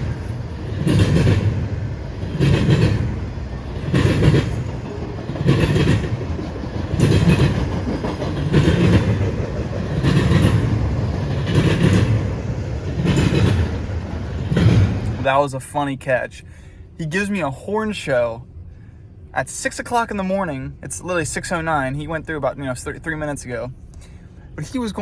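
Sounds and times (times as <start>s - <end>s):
train wheels clacking on rail joints: 0.0s - 15.2s
train rumble: 0.0s - 25.0s.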